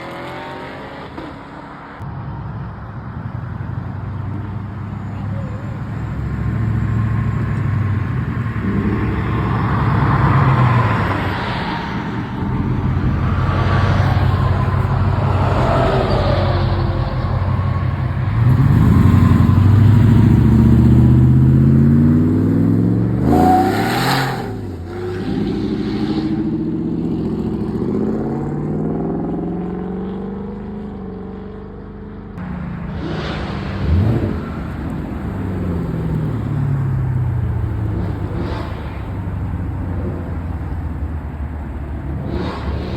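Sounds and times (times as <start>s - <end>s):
car engines revving: 0.0s - 42.9s
car passing loudly: 5.8s - 30.4s, 32.4s - 42.9s.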